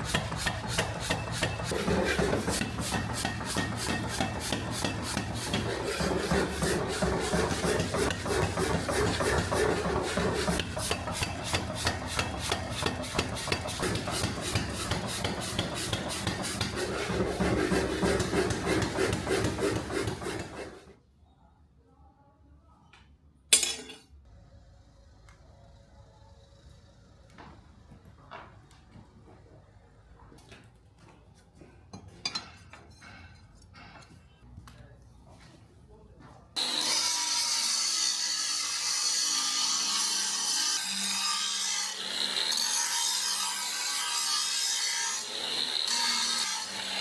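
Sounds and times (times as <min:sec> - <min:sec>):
file rasping steel: 0:00.0 - 0:20.9, 0:36.6 - 0:47.0.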